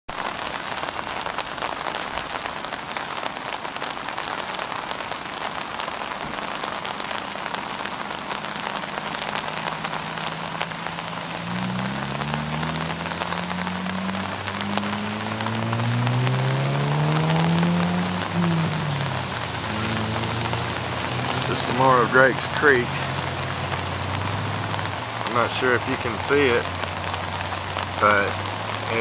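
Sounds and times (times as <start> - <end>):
heavy rain falling: 0.1 - 29.0
low engine drone: 11.4 - 25.4.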